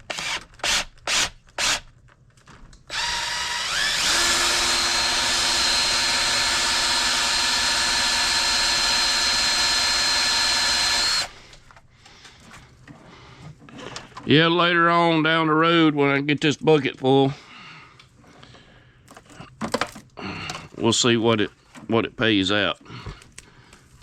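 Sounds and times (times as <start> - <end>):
wire stripper motor running: 2.9 - 11.6.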